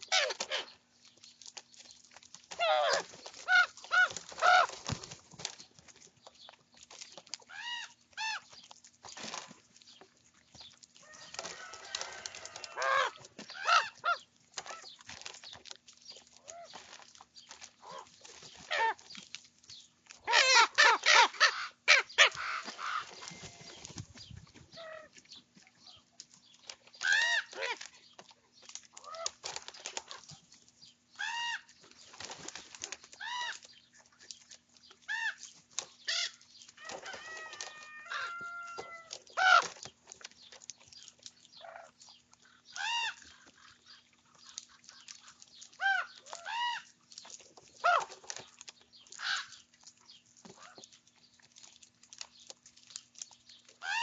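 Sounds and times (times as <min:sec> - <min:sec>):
ravens croaking and cawing: 0:02.5 - 0:05.2, 0:11.0 - 0:14.9, 0:20.2 - 0:23.9, 0:27.0 - 0:27.9, 0:31.2 - 0:31.7, 0:33.2 - 0:33.7, 0:35.1 - 0:39.9, 0:41.6 - 0:47.0, 0:47.8 - 0:48.3, 0:49.1 - 0:49.6, 0:53.8 - 0:54.0.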